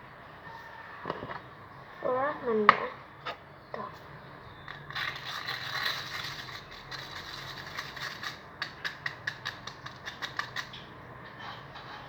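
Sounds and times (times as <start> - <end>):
stirrer clicking against bowl: 4.6 - 12.0
slime being stirred in a bowl: 4.7 - 12.0.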